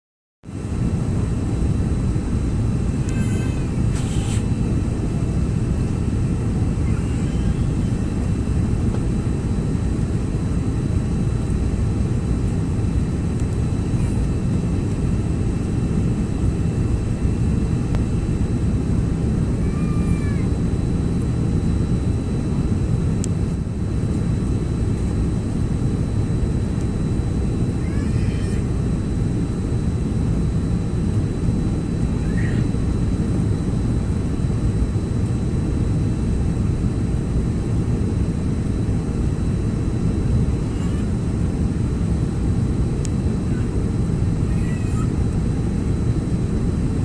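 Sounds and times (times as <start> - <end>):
jet cabin roar: 0.5 - 47.0.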